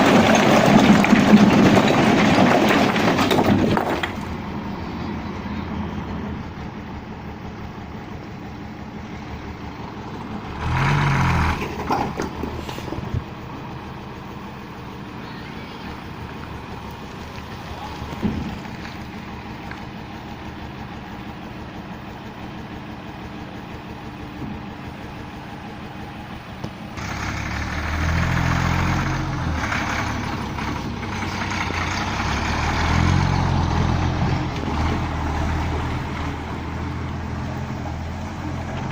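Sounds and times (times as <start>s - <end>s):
lorry engine revving: 10.1s - 13.1s, 26.9s - 38.9s.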